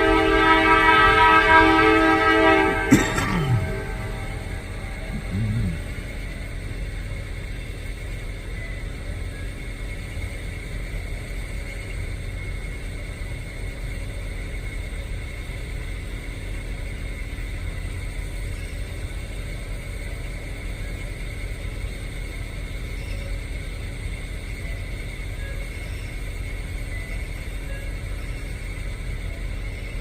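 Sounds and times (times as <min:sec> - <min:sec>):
mechanical drone with high tones: 0:03.0 - 0:07.6.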